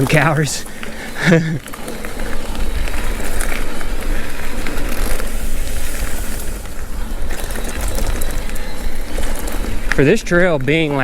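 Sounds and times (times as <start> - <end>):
bike clicks and rattles: 0.0 - 11.0
bike tyres on dirt trail: 0.0 - 11.0
wind rumble on microphone: 1.2 - 11.0.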